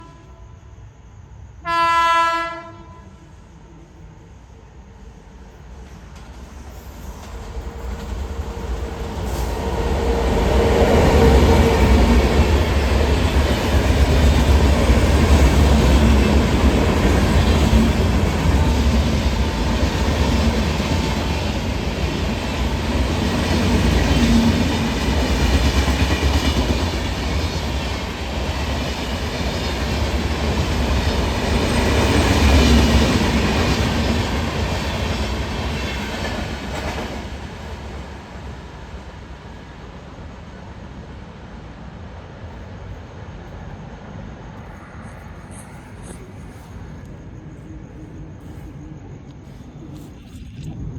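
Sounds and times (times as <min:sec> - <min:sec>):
passenger train passing: 0:00.0 - 0:50.2.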